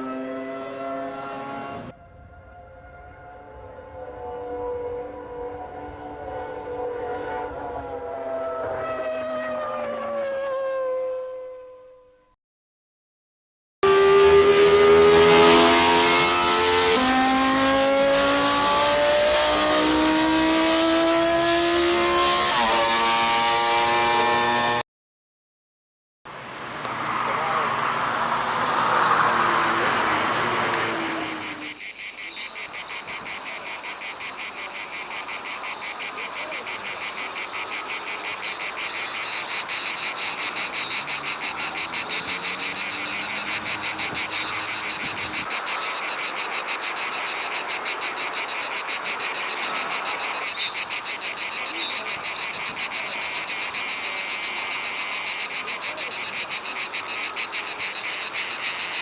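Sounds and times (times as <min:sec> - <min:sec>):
low falling tone: 0:00.1 - 0:09.0
cicadas buzzing: 0:13.8 - 0:24.8, 0:26.3 - 0:59.0.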